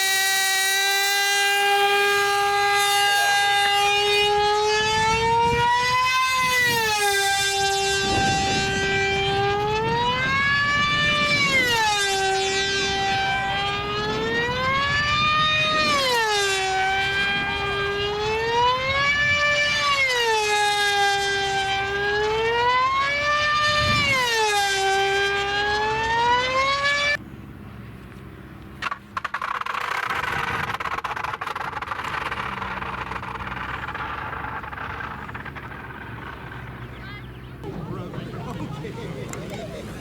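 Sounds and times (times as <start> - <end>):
siren wailing: 0.0 - 27.2.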